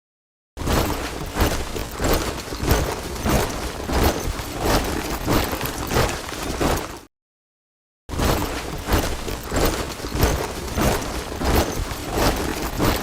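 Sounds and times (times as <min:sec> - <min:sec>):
soldiers marching in step: 0:08.6 - 0:13.0.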